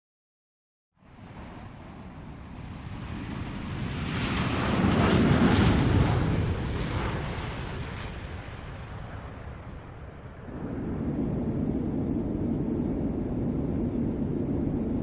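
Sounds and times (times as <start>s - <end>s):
jet airliner taking off: 2.5s - 9.4s, 10.4s - 15.0s.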